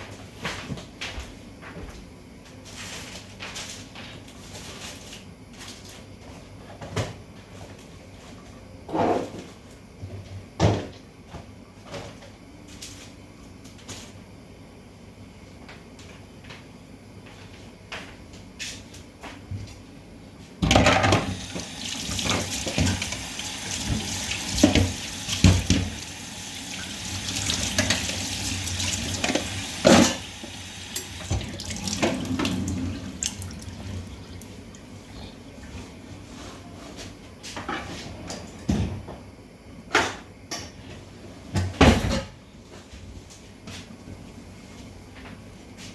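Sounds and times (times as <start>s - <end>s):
tap water running into sink: 21.0s - 34.6s.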